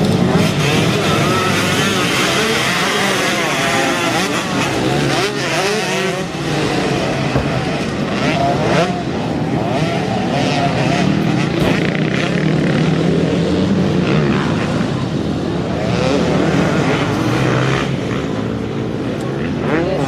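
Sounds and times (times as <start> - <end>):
motocross bike engines revving: 0.0 - 20.0.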